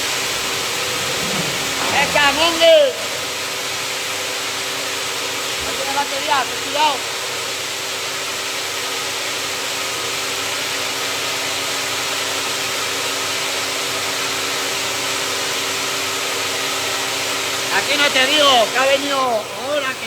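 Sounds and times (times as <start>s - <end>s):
machine engine running steadily: 0.0s - 9.3s.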